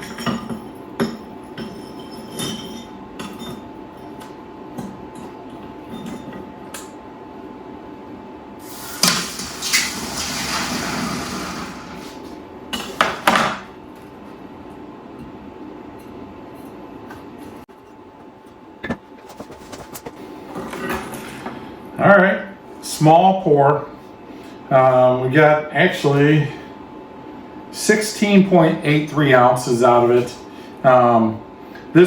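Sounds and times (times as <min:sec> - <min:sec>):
metal tools clanking and knocking: 0:00.0 - 0:03.7.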